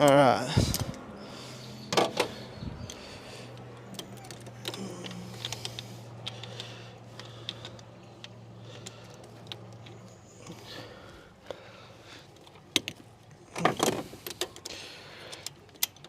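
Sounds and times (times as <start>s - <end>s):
hand tools clicking on metal: 0.0s - 1.1s, 1.9s - 10.6s, 13.6s - 16.0s
steady low hum: 0.0s - 16.0s.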